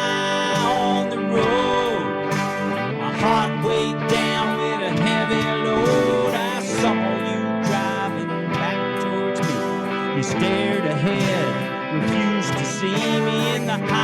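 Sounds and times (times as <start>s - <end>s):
acoustic guitar strummed and picked: 0.0s - 14.0s.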